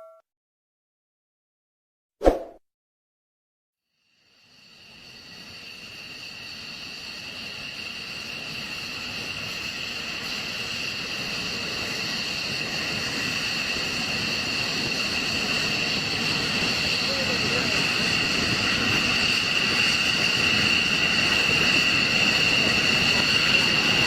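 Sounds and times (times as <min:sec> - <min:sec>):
fighter jet engine roar: 0:04.8 - 0:24.0.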